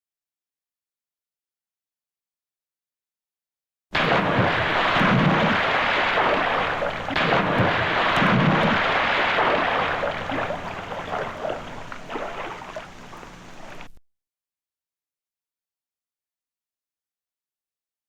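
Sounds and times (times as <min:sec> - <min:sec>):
loud noisy rumble: 0:04.0 - 0:11.8
scattered crackles: 0:04.0 - 0:14.0.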